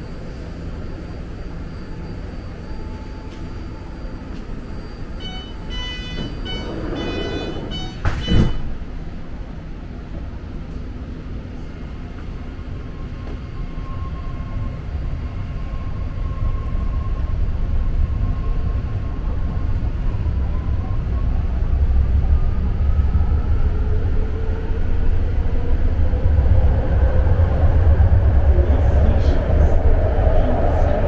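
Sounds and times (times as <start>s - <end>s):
train rumbling: 0.0s - 31.0s
short high-pitched tones: 5.2s - 8.6s
loud clunk: 6.1s - 8.8s.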